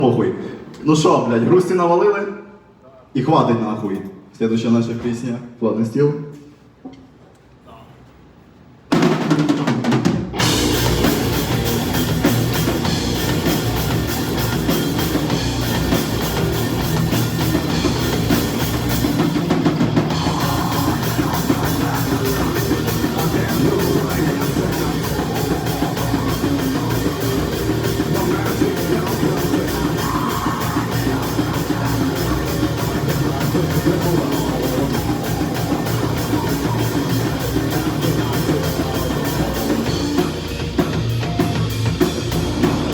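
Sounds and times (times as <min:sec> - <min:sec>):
fast drums: 0:08.7 - 0:42.9
bass guitar: 0:10.3 - 0:42.9
distorted guitars: 0:10.3 - 0:42.9.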